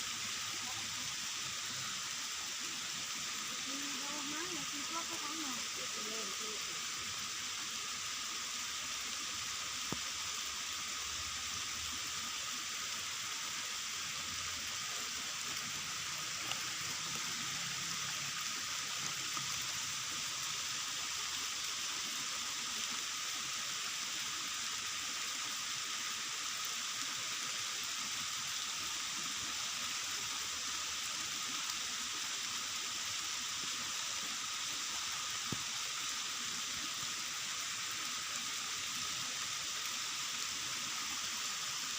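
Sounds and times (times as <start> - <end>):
rain falling: 0.0 - 7.2, 8.9 - 41.9.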